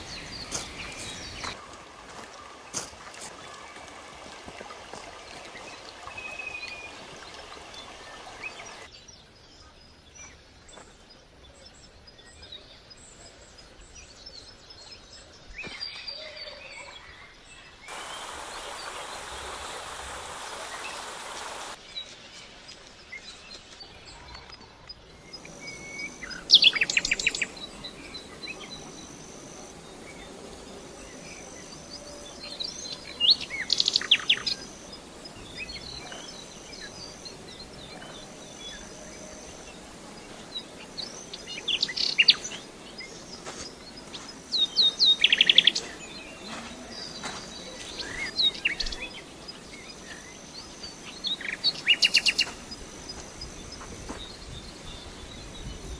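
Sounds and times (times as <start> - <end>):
steady hiss: 0.0 - 8.9, 17.8 - 24.2
birds chirping: 0.0 - 55.9
outdoor ambience: 0.0 - 55.9.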